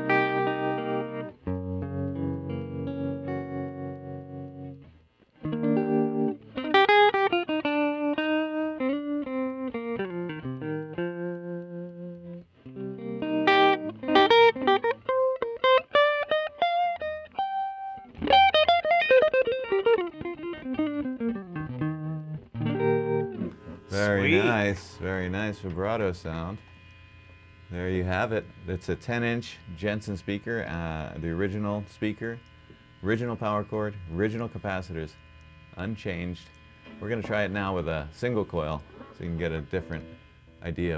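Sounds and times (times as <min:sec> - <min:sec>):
electric guitar with vibrato: 0:00.0 - 0:27.8.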